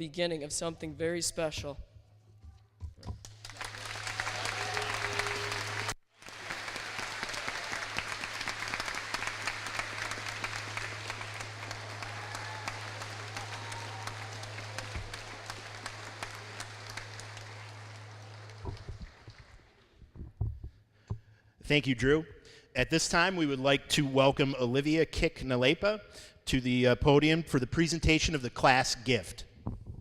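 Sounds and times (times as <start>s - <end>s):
audience applauding: 3.2s - 20.0s
low hum: 7.1s - 19.7s.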